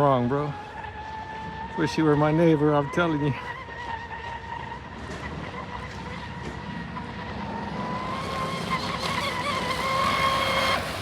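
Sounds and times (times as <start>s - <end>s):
electric motor whining: 7.4s - 11.0s.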